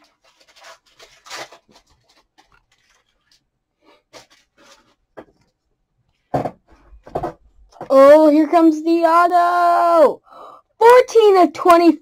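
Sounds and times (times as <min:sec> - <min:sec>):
trading cards rustling and scraping: 0:00.0 - 0:05.6.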